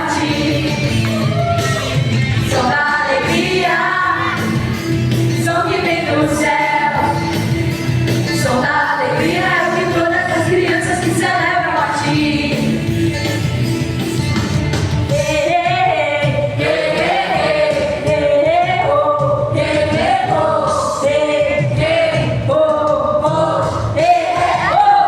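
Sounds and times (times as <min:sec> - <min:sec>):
instrumental accompaniment: 0:00.0 - 0:18.6.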